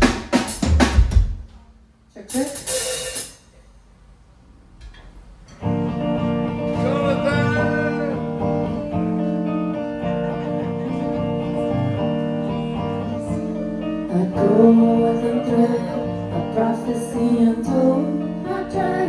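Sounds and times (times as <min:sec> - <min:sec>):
acoustic guitar chords: 0:05.6 - 0:19.0.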